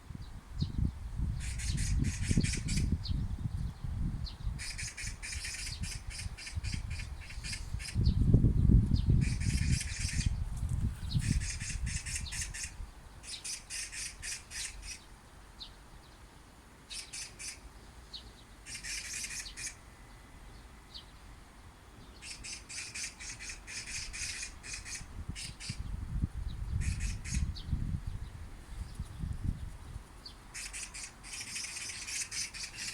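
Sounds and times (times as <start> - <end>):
magpie harsh rattling chatter: 1.4 - 2.9, 4.6 - 8.0, 9.2 - 10.3, 11.2 - 15.0, 16.9 - 17.6, 18.7 - 19.8, 22.2 - 25.8, 26.8 - 27.5, 30.6 - 32.9.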